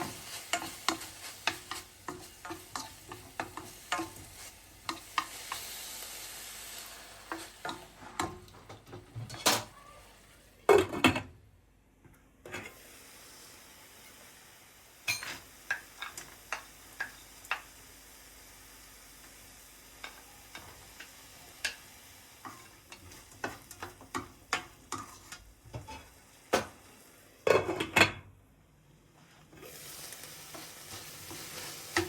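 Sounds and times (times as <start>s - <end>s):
utensil stirring and knocking pan: 0.0s - 5.9s, 7.2s - 9.6s, 20.0s - 26.8s, 30.4s - 32.0s
food sizzling in a pan: 0.0s - 10.5s, 12.7s - 27.5s, 29.5s - 32.0s
faint steady hiss: 0.0s - 10.7s, 11.5s - 32.0s.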